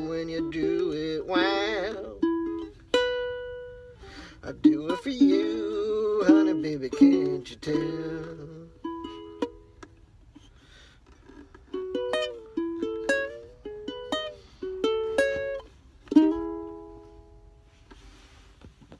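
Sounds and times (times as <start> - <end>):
plucked string instrument: 0.0 - 10.5, 11.2 - 17.8.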